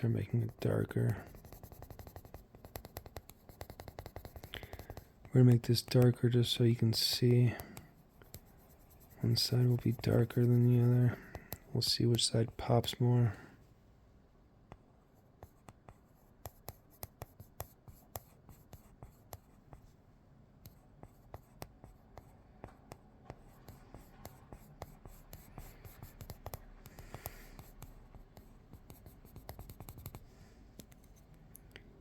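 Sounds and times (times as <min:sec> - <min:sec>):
drawing tool scratching paper: 0:00.0 - 0:05.1, 0:08.2 - 0:11.4, 0:23.3 - 0:30.2.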